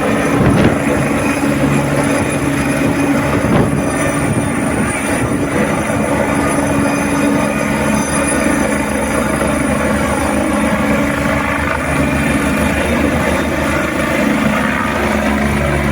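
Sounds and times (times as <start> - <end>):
helicopter engine hum: 0.0 - 15.9
helicopter rotor chop: 0.0 - 15.9.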